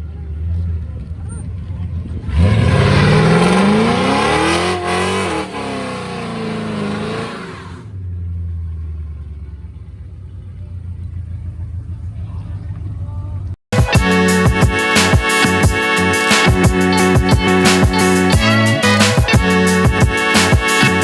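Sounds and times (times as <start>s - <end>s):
car engine revving: 2.2s - 7.9s, 13.8s - 21.0s.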